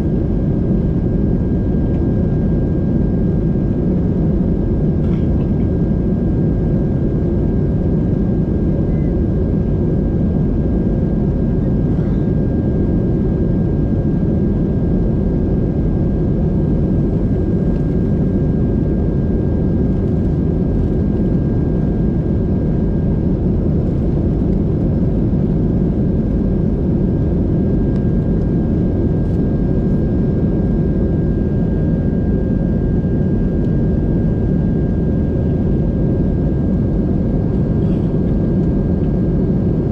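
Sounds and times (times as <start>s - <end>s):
faint high whine: 8.8s - 9.3s.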